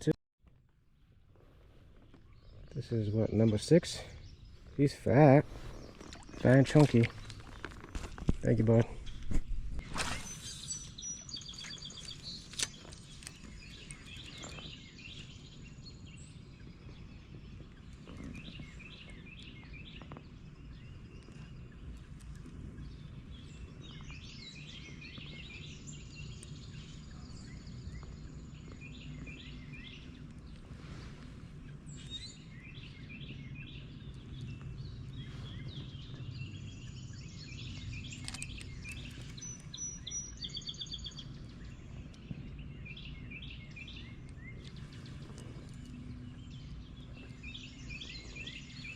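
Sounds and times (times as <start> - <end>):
birds chirping and whistling: 2.1 - 48.9
low outdoor rumble: 11.8 - 48.9.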